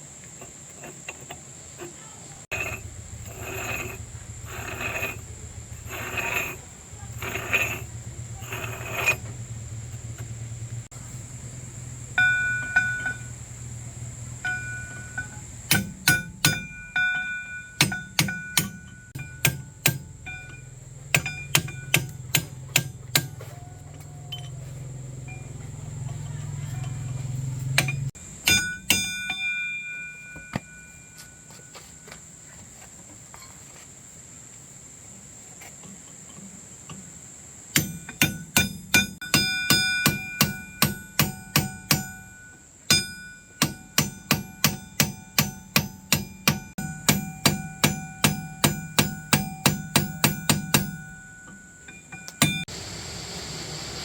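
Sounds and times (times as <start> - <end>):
hammer striking steel: 12.2 - 13.4, 14.4 - 24.5, 27.7 - 31.2, 37.7 - 52.7.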